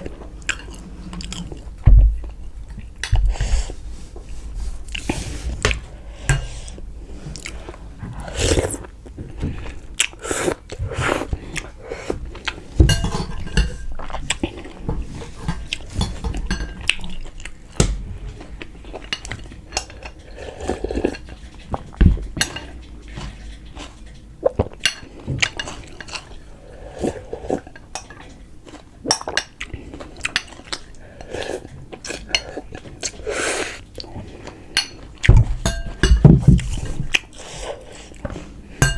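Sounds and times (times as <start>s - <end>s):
cutlery clinking against dishes: 5.7s - 6.8s, 12.8s - 17.2s, 22.1s - 23.4s, 34.8s - 37.0s.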